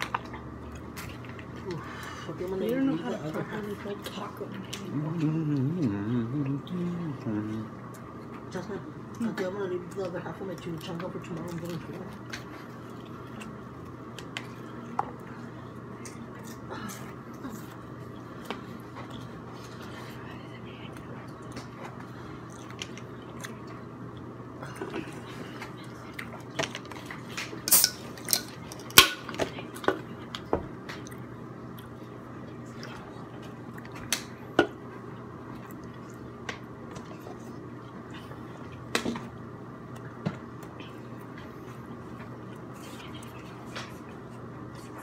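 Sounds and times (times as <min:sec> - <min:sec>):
person chewing: 0:20.9 - 0:29.0, 0:35.1 - 0:39.0.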